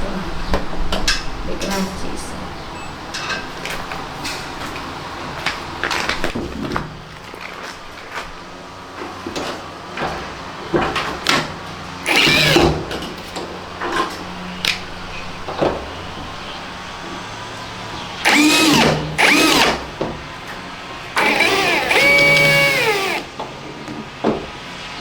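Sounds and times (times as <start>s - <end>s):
electric drill whining: 12.1s - 12.8s, 18.2s - 19.8s, 21.2s - 23.3s.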